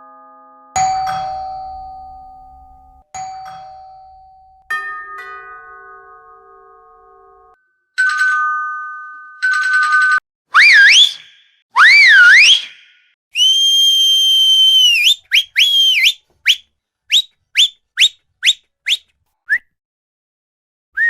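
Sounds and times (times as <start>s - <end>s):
buzzy doorbell ring: 0.0s - 6.2s
doorbell chimes: 0.0s - 6.2s.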